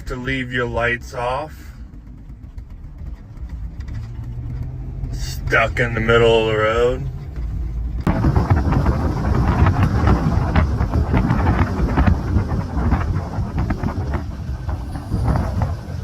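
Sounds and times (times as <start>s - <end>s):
wind blasting across microphone: 6.8s - 16.0s.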